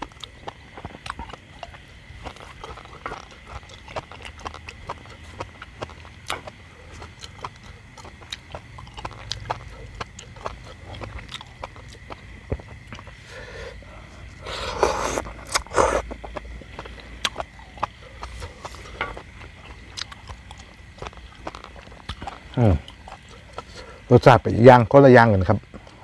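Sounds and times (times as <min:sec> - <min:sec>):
man chewing and lip-smacking: 0:00.0 - 0:24.1
low steady rumble: 0:00.0 - 0:26.0.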